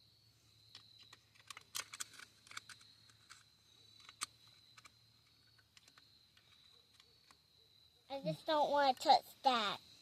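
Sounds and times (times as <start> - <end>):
high insect trill: 0.0 - 10.0
tools and small parts clicking: 0.7 - 7.4.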